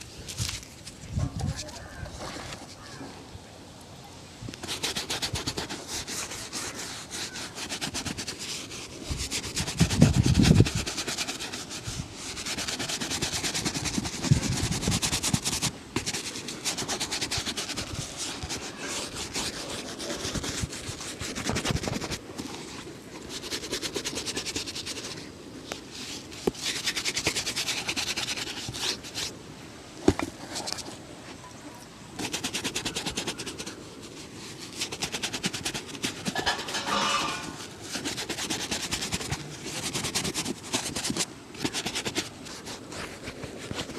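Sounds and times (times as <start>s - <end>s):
rubbing strokes on leather shoe: 0.0s - 3.0s, 4.5s - 29.4s, 30.0s - 31.0s, 32.1s - 43.9s.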